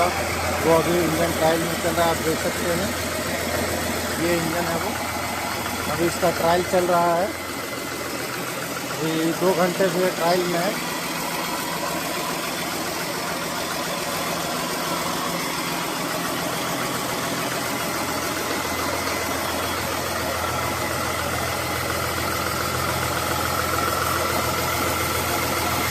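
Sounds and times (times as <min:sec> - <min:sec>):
diesel engine running steadily: 0:00.0 - 0:25.9.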